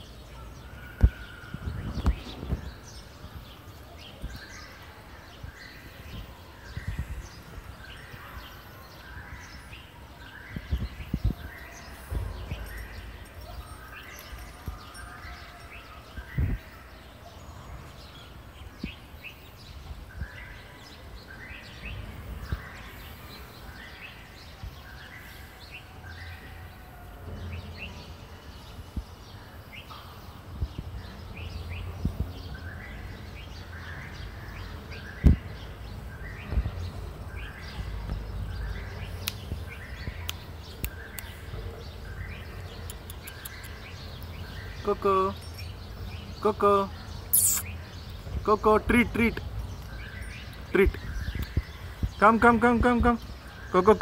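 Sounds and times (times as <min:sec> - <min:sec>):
bird chirping: 0:31.1 - 0:54.0.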